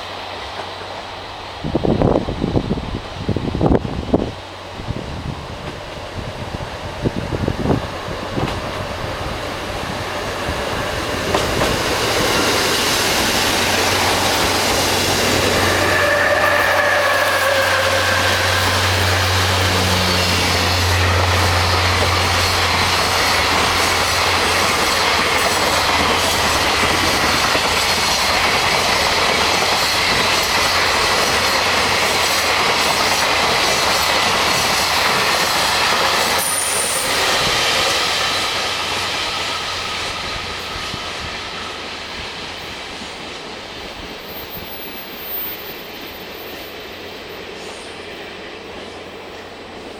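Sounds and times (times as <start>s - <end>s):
train wheels on rails: 0.0s - 49.9s
high squeal: 12.2s - 23.5s, 36.3s - 41.9s, 44.3s - 47.8s
diesel engine drone: 18.2s - 23.7s.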